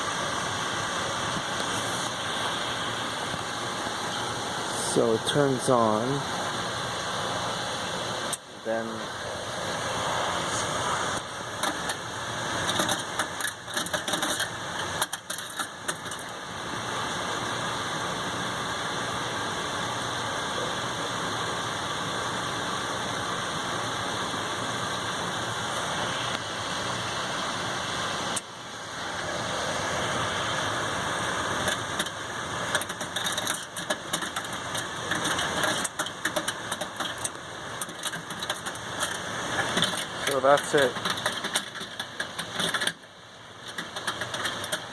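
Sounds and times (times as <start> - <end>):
pool heater grinding: 1.2 - 16.4, 25.4 - 44.9.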